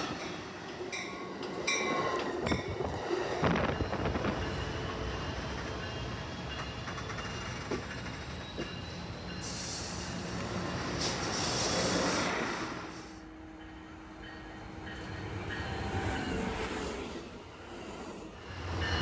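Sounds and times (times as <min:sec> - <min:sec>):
train rumbling on rails: 0:00.0 - 0:19.0
high hiss from wheels: 0:09.4 - 0:13.3.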